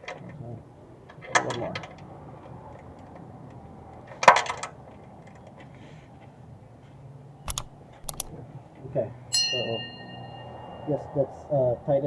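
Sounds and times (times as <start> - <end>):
ratchet wrench clicks: 7.5 - 8.3.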